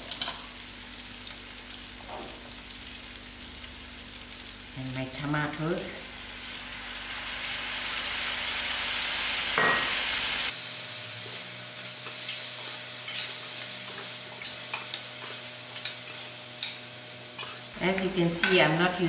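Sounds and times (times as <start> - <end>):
potatoes frying in oil: 0.0 - 19.0
metal spoon scraping a pot: 12.0 - 16.8, 17.4 - 17.7.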